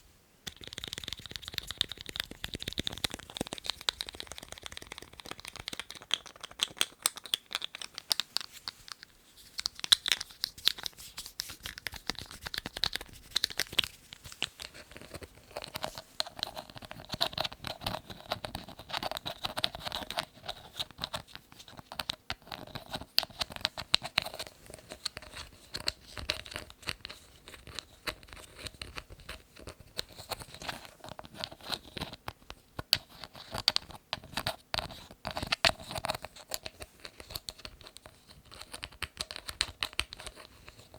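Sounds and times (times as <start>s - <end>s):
lids tapping and scratching: 0.5s - 26.7s.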